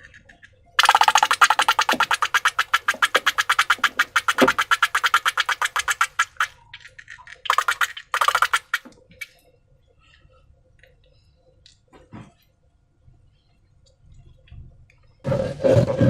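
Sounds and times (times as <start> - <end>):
slime clicking and crackling: 0.8 - 6.5, 7.4 - 8.9.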